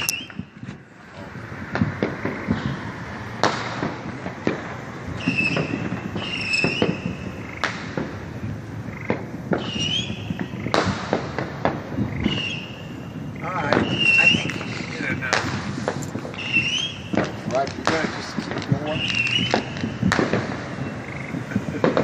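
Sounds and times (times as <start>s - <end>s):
high-pitched firework whistles: 0.0s - 0.8s, 5.0s - 8.2s, 9.1s - 22.0s
fireworks banging and crackling: 0.0s - 22.0s.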